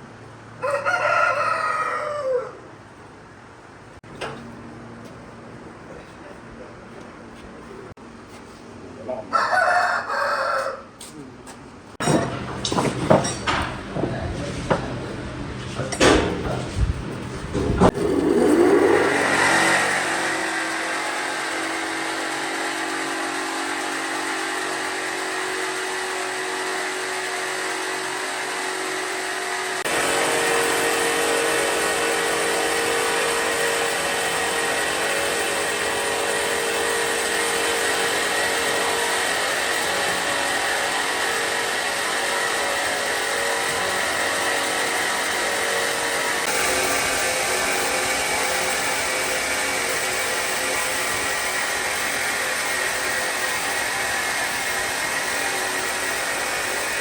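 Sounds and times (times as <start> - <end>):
power tool motor whining: 17.4 - 57.0.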